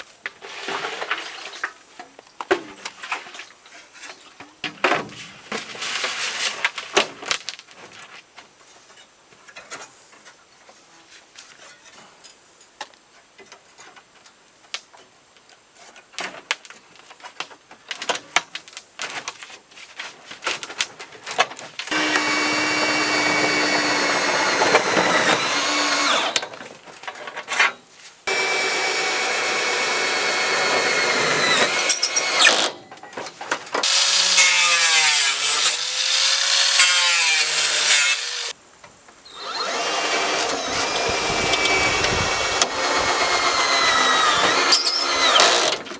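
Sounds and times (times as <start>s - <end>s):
power tool running: 21.9s - 26.4s, 28.3s - 32.7s, 33.8s - 38.5s, 39.3s - 45.8s.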